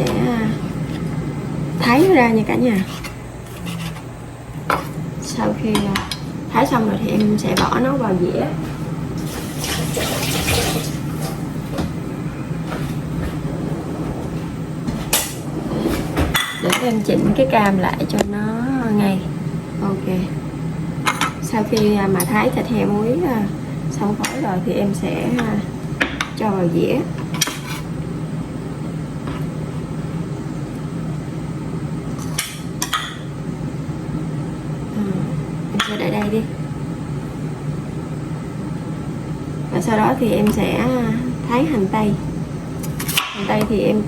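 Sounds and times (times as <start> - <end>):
kitchen appliance humming: 0.0 - 44.0
kitchenware clattering: 12.7 - 17.5.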